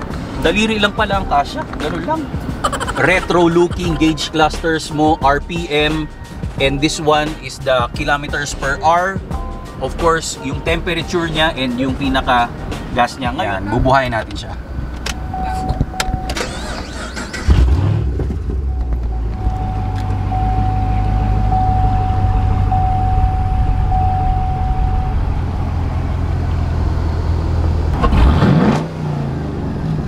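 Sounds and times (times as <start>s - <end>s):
car engine starting and idling: 0.0s - 30.0s
dashboard warning chime: 15.2s - 16.8s, 18.6s - 25.8s
engine revving: 15.3s - 30.0s.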